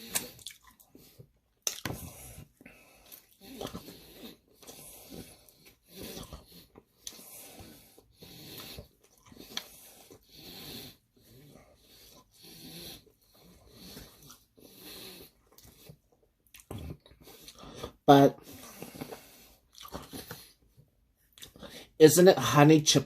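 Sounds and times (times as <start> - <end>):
wet chewing: 0.0 - 10.3, 13.3 - 20.7
breathing through the nose: 17.1 - 20.6, 21.5 - 22.0.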